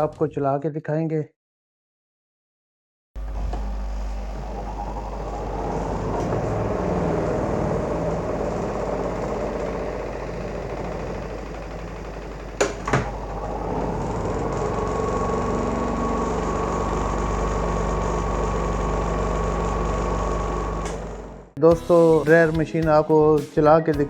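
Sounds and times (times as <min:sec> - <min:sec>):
spin dryer motor hum and whine: 0:03.2 - 0:21.6.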